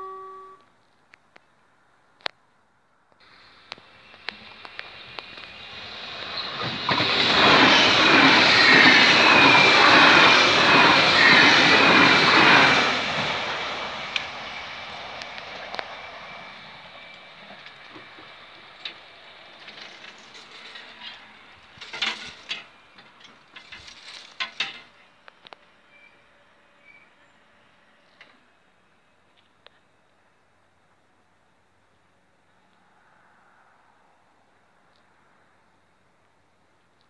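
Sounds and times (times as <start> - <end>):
train rushing past: 3.3 - 22.9.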